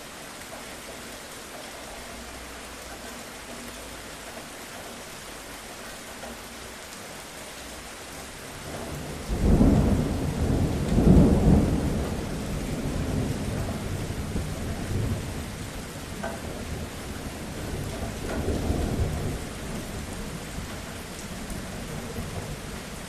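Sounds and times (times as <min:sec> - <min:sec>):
steady rainfall: 0:00.0 - 0:23.0
thunder rumbling: 0:08.5 - 0:23.0.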